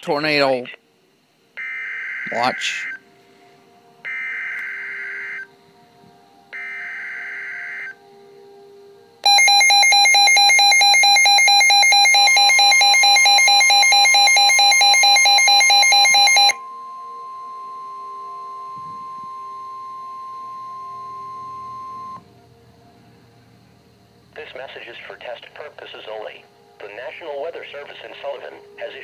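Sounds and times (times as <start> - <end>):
rapidly pulsing alarm: 1.6 - 3.0, 4.0 - 5.6, 6.5 - 8.0, 9.2 - 22.2
steady warning tone: 1.6 - 3.1, 3.9 - 22.6
screechy digital data bursts: 9.3 - 16.6.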